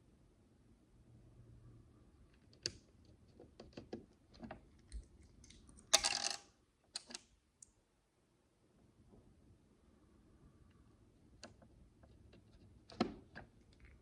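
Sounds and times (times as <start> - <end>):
plastic bricks clattering: 5.9 - 6.5
plastic bricks clicking: 5.9 - 7.2.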